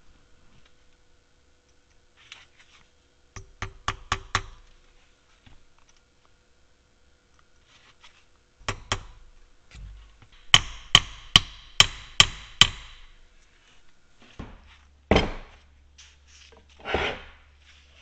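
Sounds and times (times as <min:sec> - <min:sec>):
small hammer tapping metal: 0:03.4 - 0:04.7, 0:08.6 - 0:09.2, 0:10.4 - 0:13.1.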